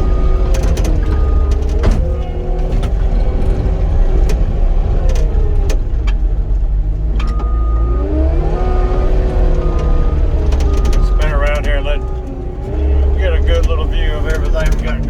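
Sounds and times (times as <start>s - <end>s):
hydraulic whine: 0.0s - 15.0s
loader diesel engine running: 0.0s - 15.0s.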